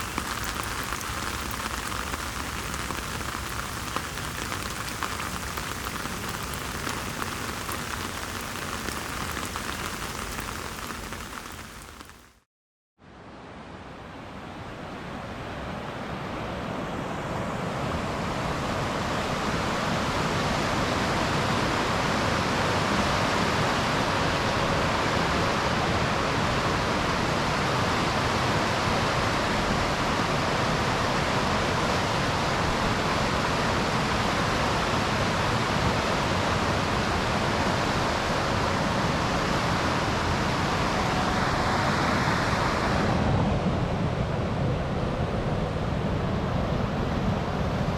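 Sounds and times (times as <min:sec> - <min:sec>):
waterfall rushing: 0:00.0 - 0:12.3.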